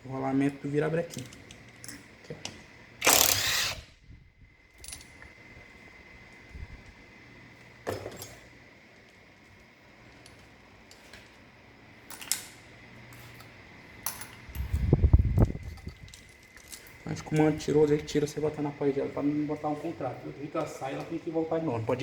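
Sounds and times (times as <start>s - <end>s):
metallic clinks of engine parts: 4.8s - 5.2s, 15.5s - 18.0s.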